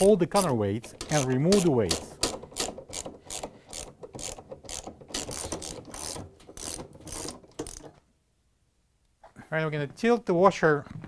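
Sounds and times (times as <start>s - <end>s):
socket ratchet clicking: 0.0s - 7.9s.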